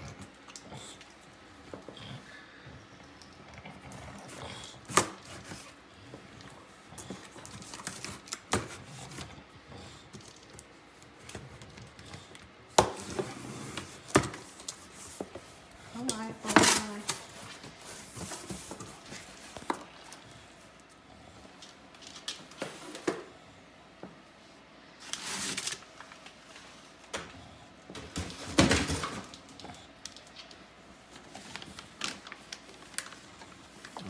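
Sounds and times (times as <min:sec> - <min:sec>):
knocks and clicks of packaging: 0:07.4 - 0:09.3, 0:11.3 - 0:15.4
packaging rustle: 0:28.6 - 0:34.0.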